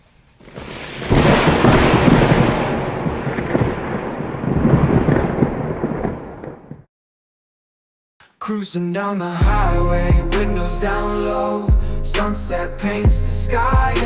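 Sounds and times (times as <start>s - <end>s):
heavy rain: 0.0s - 6.9s
thunder rumbling: 0.4s - 6.9s.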